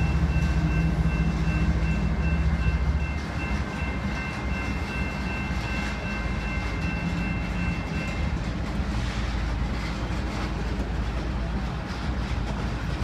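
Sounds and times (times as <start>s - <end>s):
freight train rumbling: 0.0s - 13.0s.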